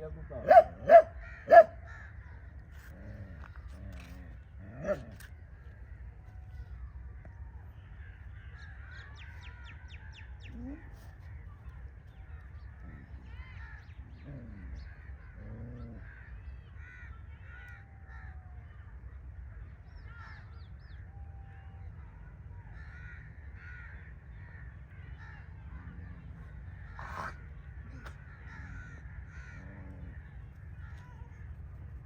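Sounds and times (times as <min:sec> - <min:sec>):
birds calling: 0:00.0 - 0:06.2, 0:22.7 - 0:31.5.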